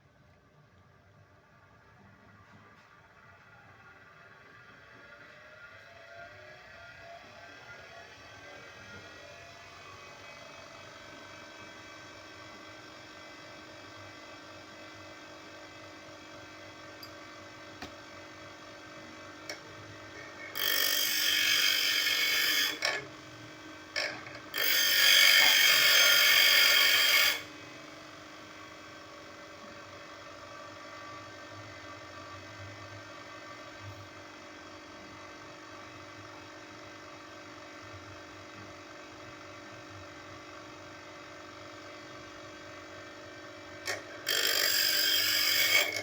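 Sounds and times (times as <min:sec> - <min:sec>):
bench grinder motor hum: 0:19.5 - 0:28.2, 0:42.6 - 0:46.0.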